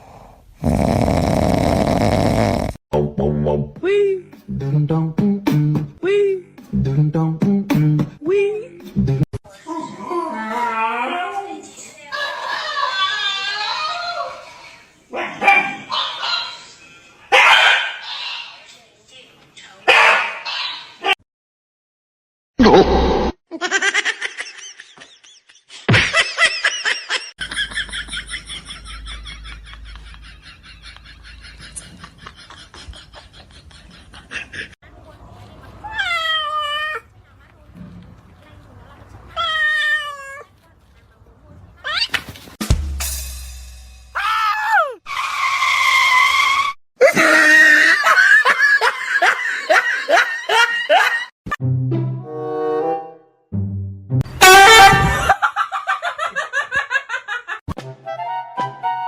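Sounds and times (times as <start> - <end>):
people laughing: 23.6 - 34.8, 47.0 - 51.3, 54.9 - 57.6.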